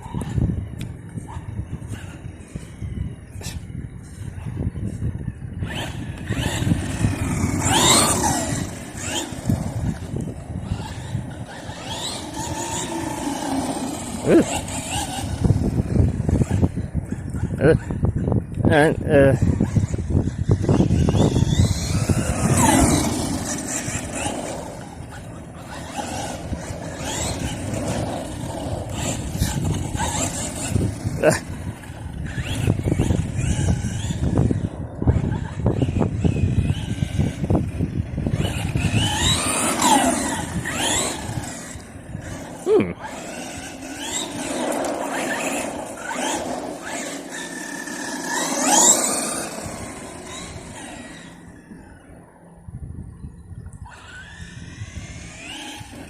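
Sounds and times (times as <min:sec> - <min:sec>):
electric motor whining: 0:04.8 - 0:52.7, 0:53.6 - 0:56.0
tyres rumbling on ground: 0:05.6 - 0:17.2, 0:19.2 - 0:52.0.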